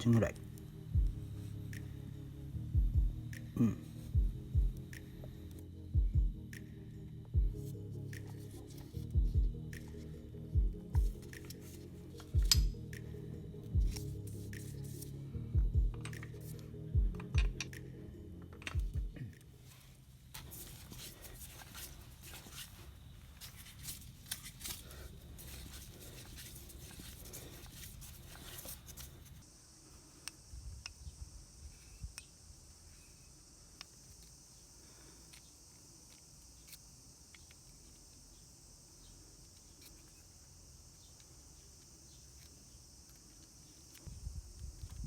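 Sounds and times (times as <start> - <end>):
small tools clicking and tapping: 11.0 - 13.0, 15.9 - 16.6, 17.2 - 19.0.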